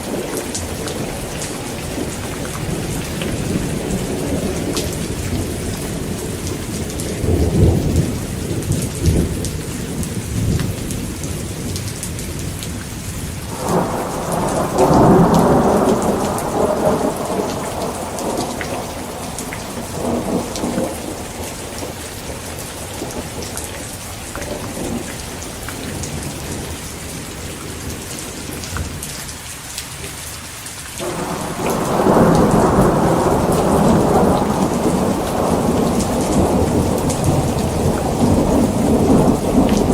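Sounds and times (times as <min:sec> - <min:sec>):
thunder rumbling: 0:00.0 - 0:29.1, 0:31.0 - 0:39.9
heavy rain falling: 0:00.0 - 0:39.9
thunder clap: 0:13.5 - 0:27.8, 0:31.0 - 0:39.9.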